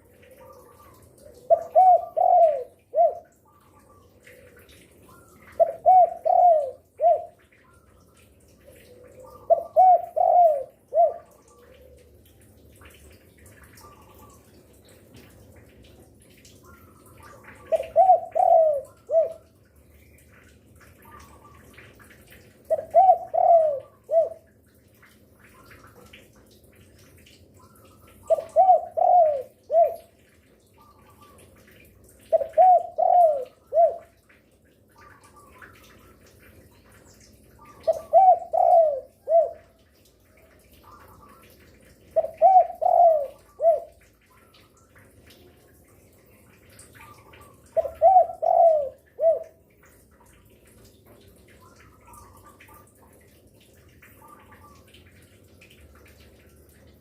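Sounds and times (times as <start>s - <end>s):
dove cooing: 0.0s - 7.4s, 8.6s - 12.2s, 17.3s - 19.6s, 22.6s - 24.5s, 28.2s - 30.1s, 32.2s - 34.2s, 37.6s - 39.8s, 40.7s - 44.6s, 47.0s - 49.6s.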